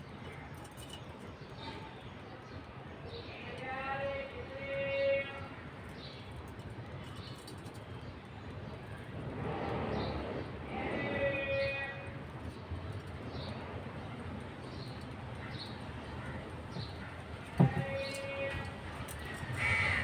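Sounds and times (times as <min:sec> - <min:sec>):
steady background noise: 0:00.0 - 0:20.0.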